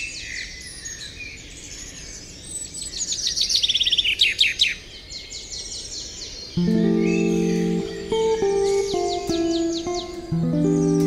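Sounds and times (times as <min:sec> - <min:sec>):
songbirds chirping and singing: 0:00.0 - 0:11.0
rapid bird trills: 0:06.6 - 0:11.0.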